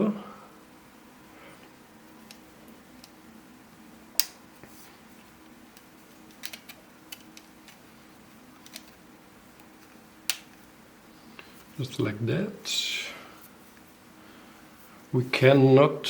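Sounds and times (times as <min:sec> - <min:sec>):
plastic pieces clicking together: 0:06.3 - 0:07.8, 0:08.6 - 0:09.0.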